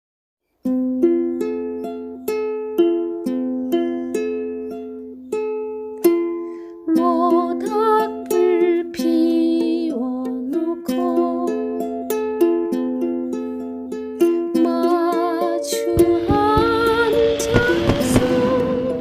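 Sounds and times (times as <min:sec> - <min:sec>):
ukulele strumming chords: 0:00.6 - 0:19.0
wavering melody line: 0:15.0 - 0:19.0.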